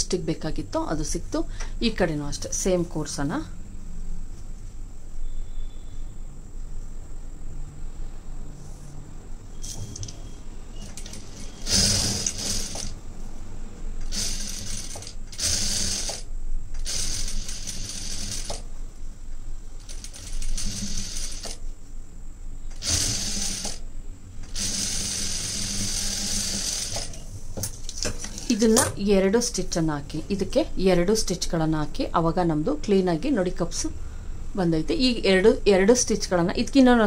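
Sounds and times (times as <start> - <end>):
sewing machine stitching: 10.8 - 13.0, 14.0 - 18.6, 19.9 - 21.6, 22.8 - 23.8, 24.5 - 27.2.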